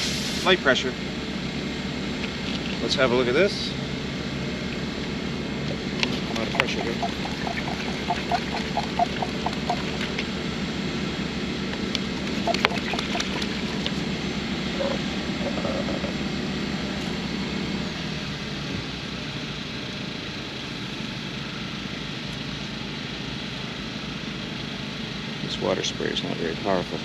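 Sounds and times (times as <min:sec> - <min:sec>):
low machine hum: 0:00.6 - 0:19.3.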